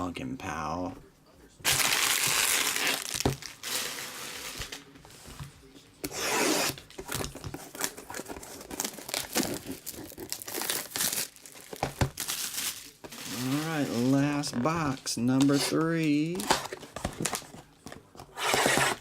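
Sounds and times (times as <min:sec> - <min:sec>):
plastic packaging crinkling and tearing: 0:01.6 - 0:04.9, 0:06.7 - 0:17.5.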